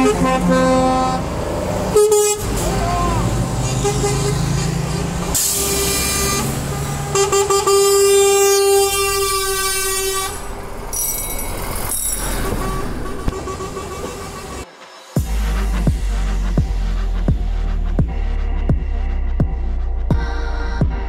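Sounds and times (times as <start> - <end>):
truck air horn blast: 0.0 - 1.3, 1.9 - 10.7.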